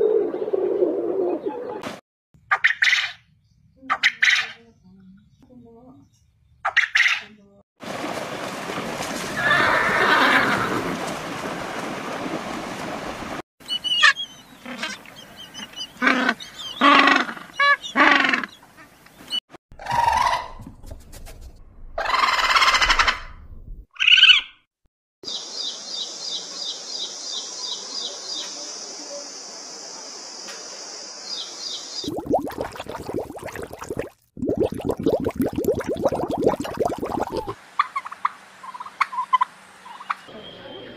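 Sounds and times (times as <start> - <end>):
horse neighing: 9.4 - 10.9.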